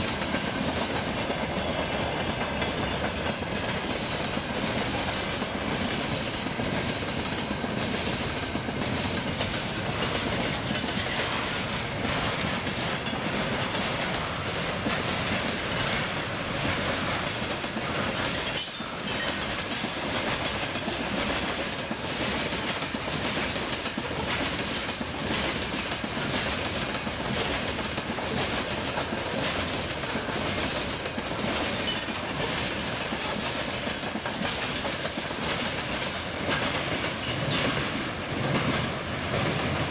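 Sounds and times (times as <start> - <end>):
train wheels clattering on rails: 0.0 - 39.9
wheel squeal: 33.2 - 33.7.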